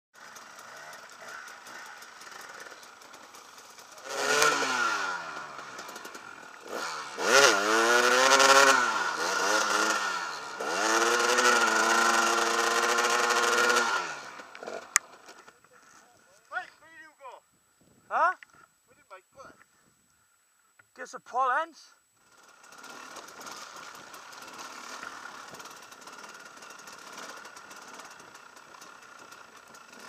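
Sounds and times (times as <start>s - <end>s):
two-stroke motorcycle engine revving: 0.2s - 15.5s, 22.2s - 30.0s.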